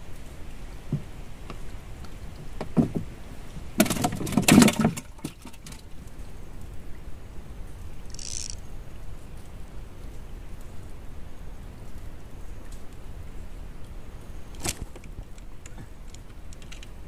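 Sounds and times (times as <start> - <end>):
water noise: 0.0 - 17.0
knocks and rattles in wooden boat: 0.8 - 1.6, 2.3 - 5.8.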